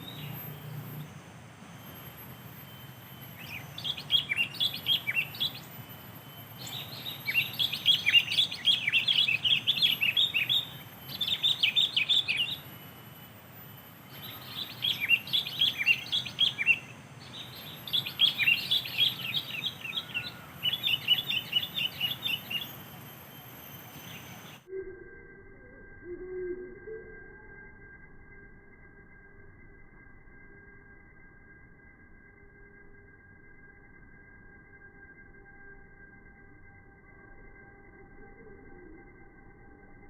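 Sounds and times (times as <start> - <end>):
bulbuls chirping: 0.0 - 24.7.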